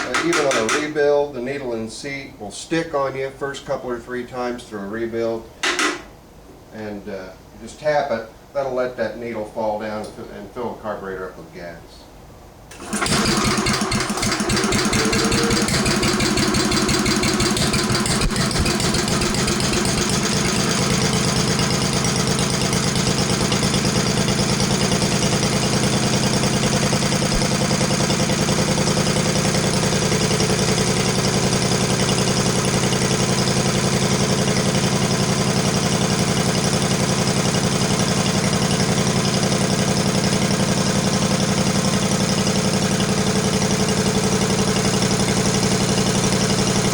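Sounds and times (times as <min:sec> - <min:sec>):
engine starting and idling: 0:00.0 - 0:00.9, 0:12.7 - 0:46.9.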